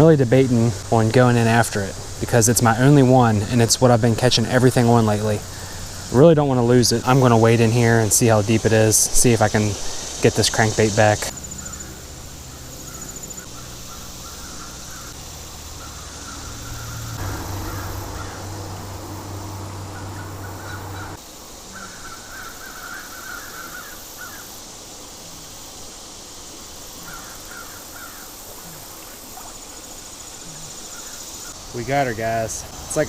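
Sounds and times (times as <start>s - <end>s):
steady rushing noise with hum: 0.2s - 22.6s
crows cawing: 11.6s - 24.5s, 27.0s - 29.5s.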